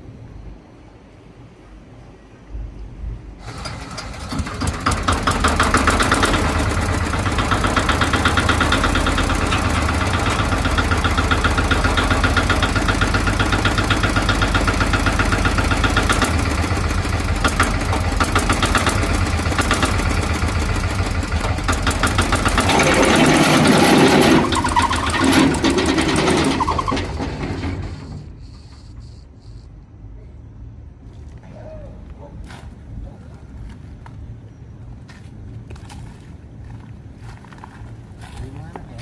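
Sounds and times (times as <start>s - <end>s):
boat engine starting and running: 3.4s - 29.2s.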